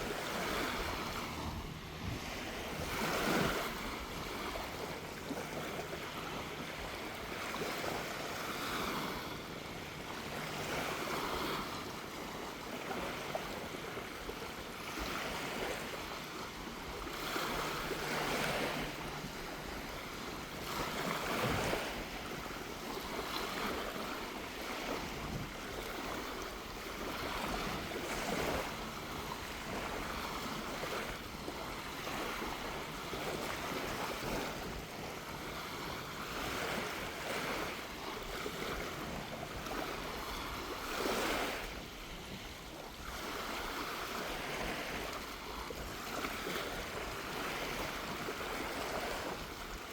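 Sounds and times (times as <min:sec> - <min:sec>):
sea breeze: 0:00.0 - 0:49.9
small waves breaking on beach: 0:00.0 - 0:49.9.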